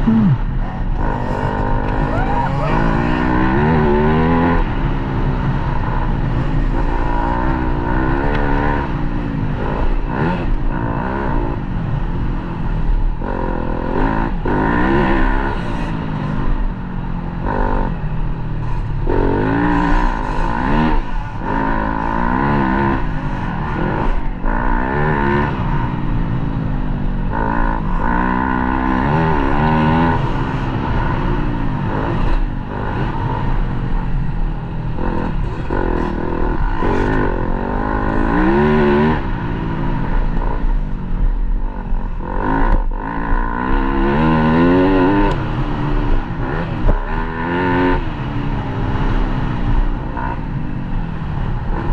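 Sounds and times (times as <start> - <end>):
dirt bike engine revving: 0.0 - 11.6, 18.6 - 25.9, 34.9 - 40.7.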